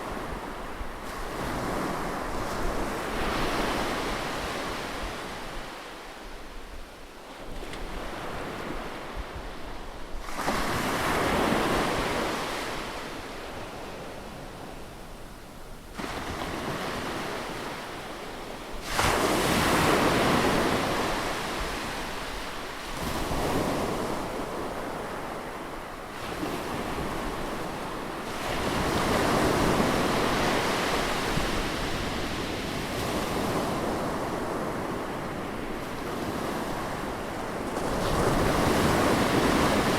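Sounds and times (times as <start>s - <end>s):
ocean surf breaking on beach: 15.9s - 39.9s.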